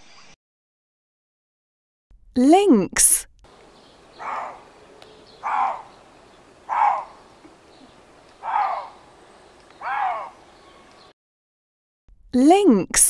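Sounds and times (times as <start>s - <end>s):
lynx calling: 3.5s - 11.1s.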